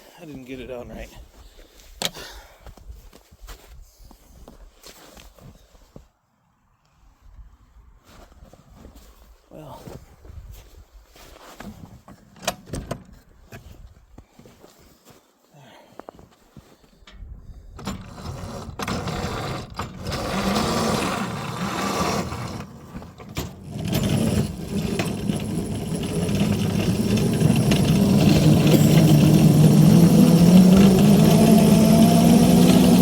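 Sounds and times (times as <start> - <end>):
locomotive engine running: 18.1 - 33.0.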